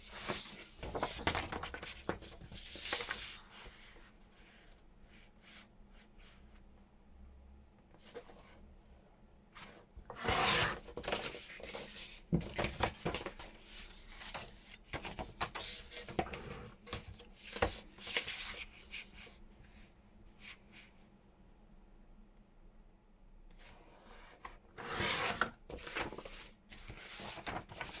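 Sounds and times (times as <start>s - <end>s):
paper rustling and rasping: 24.8s - 28.0s.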